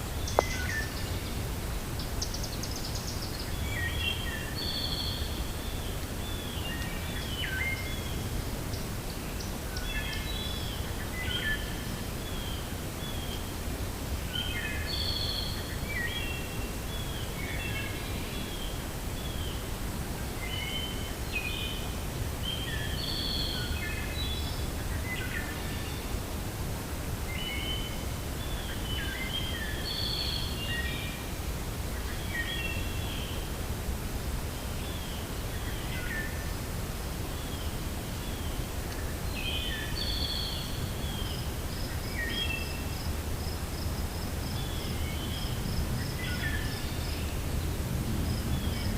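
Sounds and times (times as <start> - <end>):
low rush of wind: 0.0 - 48.9
songbirds chirping and calling: 37.3 - 48.9.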